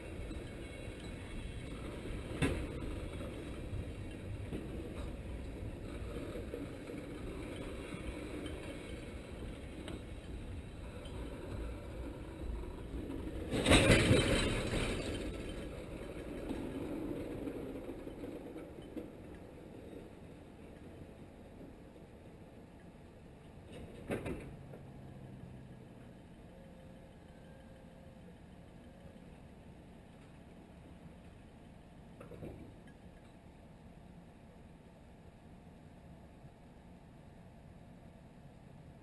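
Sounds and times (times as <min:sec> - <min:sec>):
steel wheels rumbling on rails: 0:00.0 - 0:32.7.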